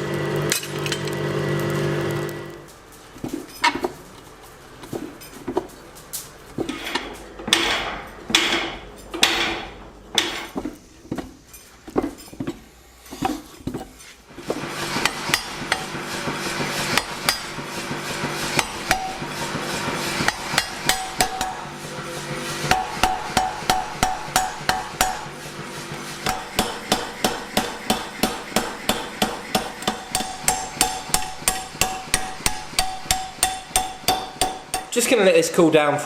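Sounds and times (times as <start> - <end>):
hammer blows on hot steel: 14.5 - 35.2.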